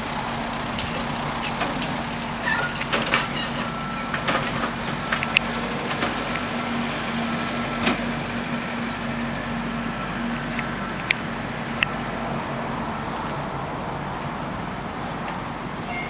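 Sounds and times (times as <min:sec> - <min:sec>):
engine humming: 0:00.0 - 0:16.0
sharp knocks and clanks: 0:00.6 - 0:06.5.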